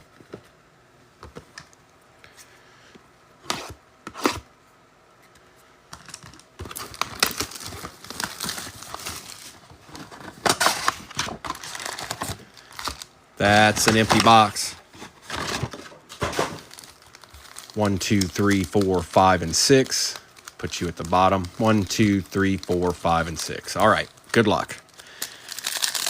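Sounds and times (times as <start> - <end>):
card pack wrappers torn and crinkled: 6.0 - 26.0.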